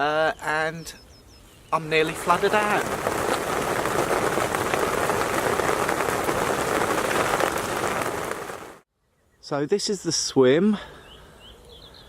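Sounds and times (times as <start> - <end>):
rain pattering: 1.8 - 8.8.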